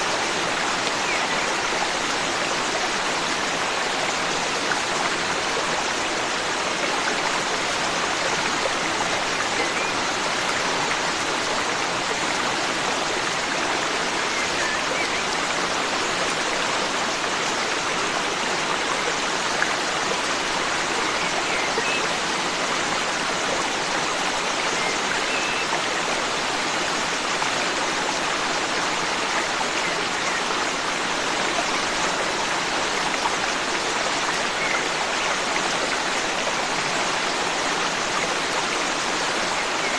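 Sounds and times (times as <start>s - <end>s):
forest stream flowing: 0.0s - 39.9s.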